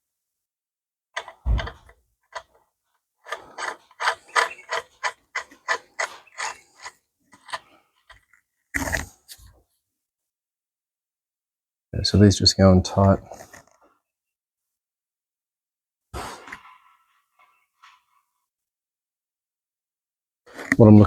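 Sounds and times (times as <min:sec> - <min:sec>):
ratchet clicks: 0:03.3 - 0:07.6.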